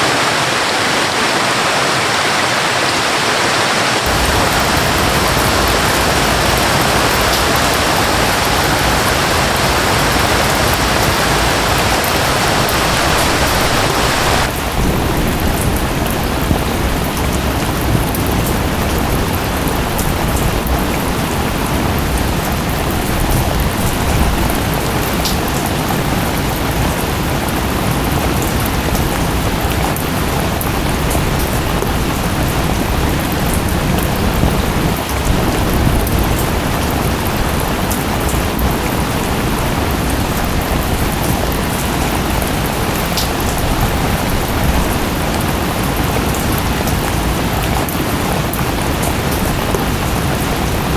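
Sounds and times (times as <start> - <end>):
waterfall rushing: 0.0 - 14.9
heavy rain: 0.0 - 50.9
rain drop ticks: 4.1 - 14.6.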